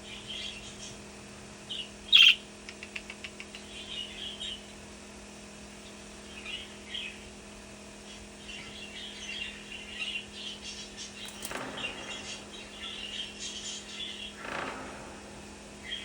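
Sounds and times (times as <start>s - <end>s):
budgerigar chirping: 1.7s - 2.4s.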